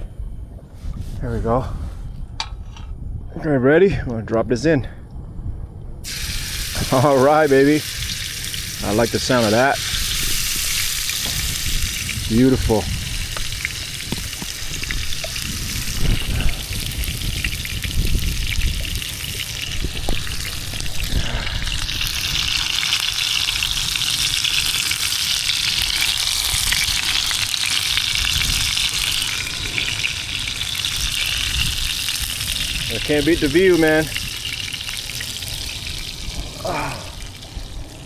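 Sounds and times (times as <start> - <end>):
low rumble: 0.0 - 7.1
steak sizzling in frying pan: 6.0 - 36.4.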